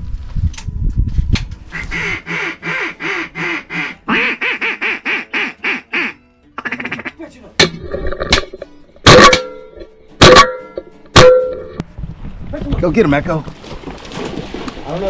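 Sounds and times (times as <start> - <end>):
duck quacks: 1.8 - 7.2.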